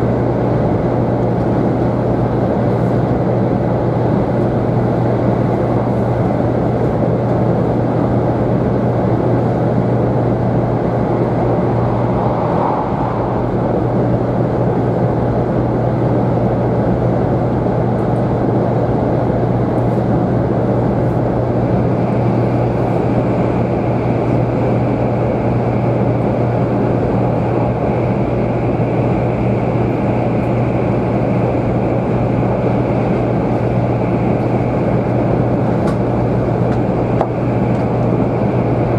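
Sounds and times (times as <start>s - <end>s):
train cabin running drone: 0.0s - 38.9s
faint high whine: 10.4s - 15.3s.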